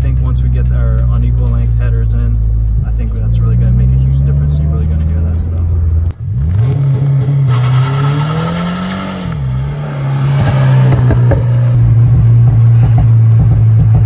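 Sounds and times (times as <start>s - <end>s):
sharp exhaust pops: 0.0s - 14.0s
car engine accelerating past: 2.5s - 14.0s.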